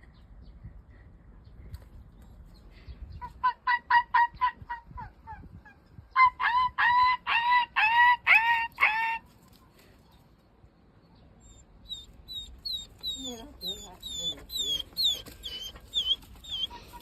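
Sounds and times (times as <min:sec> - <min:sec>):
animal calling: 0:11.4 - 0:17.0.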